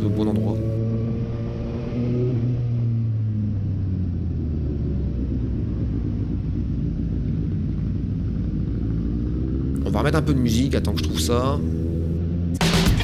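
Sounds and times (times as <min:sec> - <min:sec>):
motorcycle engine running: 0:02.6 - 0:13.0.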